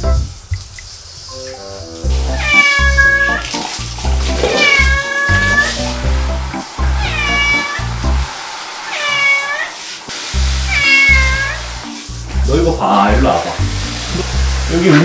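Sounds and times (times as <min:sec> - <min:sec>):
background music with bass: 0:01.3 - 0:04.5, 0:05.3 - 0:07.2, 0:07.8 - 0:08.3, 0:12.1 - 0:15.0
cat meowing loudly: 0:02.3 - 0:03.4, 0:04.4 - 0:05.8, 0:07.0 - 0:07.9, 0:08.9 - 0:09.8, 0:10.7 - 0:11.6.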